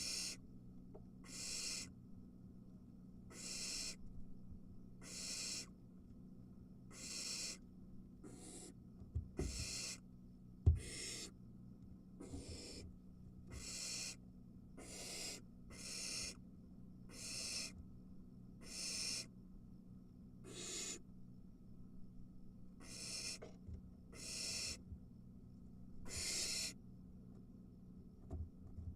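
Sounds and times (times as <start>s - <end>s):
owl nestlings hissing: 0.0s - 0.4s, 1.2s - 1.9s, 3.3s - 4.0s, 5.0s - 5.7s, 6.9s - 7.6s, 8.2s - 8.8s, 9.5s - 10.0s, 10.8s - 11.3s, 12.2s - 12.8s, 13.5s - 14.2s, 14.8s - 16.4s, 17.1s - 17.8s, 18.6s - 19.3s, 20.4s - 21.0s, 22.8s - 23.5s, 24.1s - 24.8s, 26.0s - 26.8s
soft knocks in nest: 9.0s - 9.6s.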